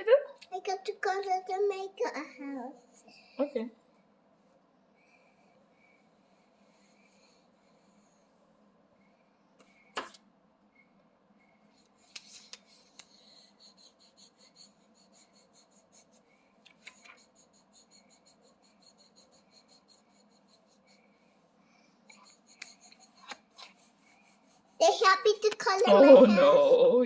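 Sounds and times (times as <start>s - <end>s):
crayon scribbling on paper: 11.8s - 21.3s, 22.1s - 25.9s.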